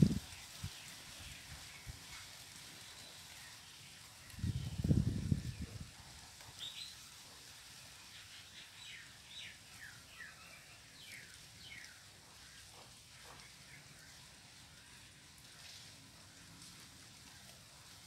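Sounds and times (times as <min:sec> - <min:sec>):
small birds chirping: 0:00.2 - 0:15.2
low rumble on microphone: 0:04.3 - 0:06.1.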